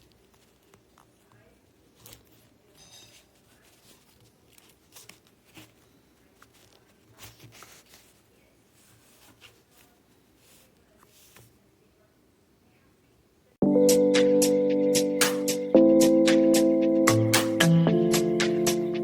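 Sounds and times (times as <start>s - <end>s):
handling rustles and clicks: 0.0s - 11.6s.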